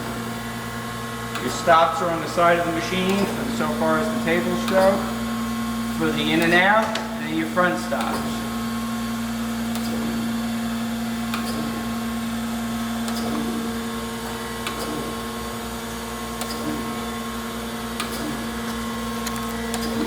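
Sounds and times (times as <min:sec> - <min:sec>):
surface grinder humming: 0:01.2 - 0:15.5.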